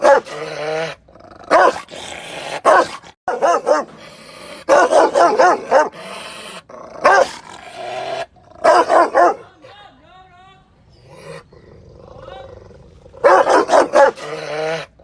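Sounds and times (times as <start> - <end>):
dog barking angrily: 0.0 - 9.5, 13.1 - 15.0.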